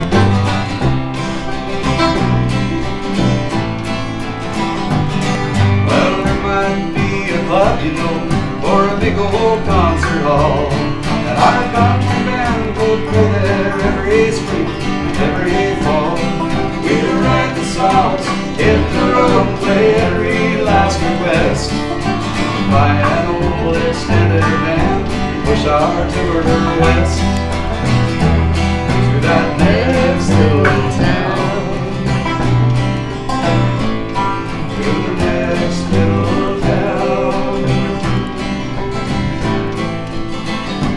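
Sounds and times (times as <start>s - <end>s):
bass line: 0.0s - 40.9s
plucked acoustic guitar: 0.0s - 40.9s
sliding lead string melody: 0.0s - 40.9s.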